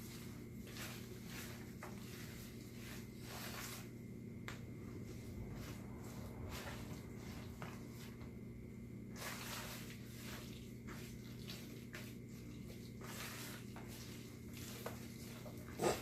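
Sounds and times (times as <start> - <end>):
spoon stirring sticky mixture: 0.0 - 4.0, 9.1 - 16.0.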